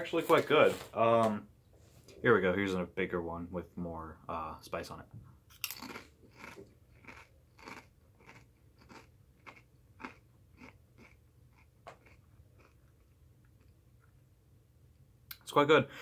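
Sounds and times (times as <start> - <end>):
tortilla chip crunching: 5.6 - 14.1.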